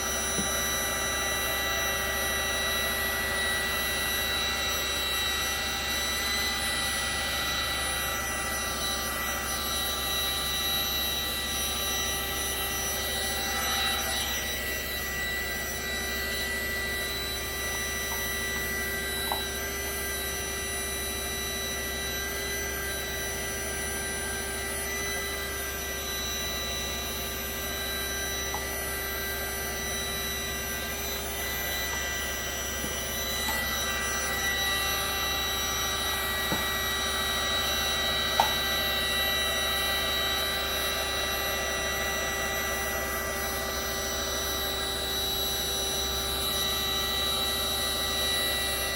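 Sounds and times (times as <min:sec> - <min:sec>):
heat gun fan whine: 0:00.0 - 0:48.9.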